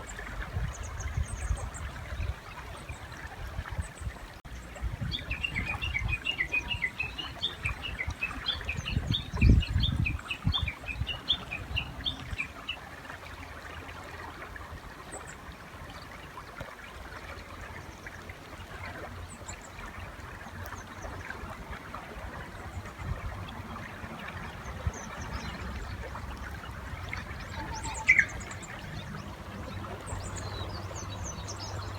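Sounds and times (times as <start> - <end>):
bush warbler call: 5.1 - 12.7, 27.0 - 31.9.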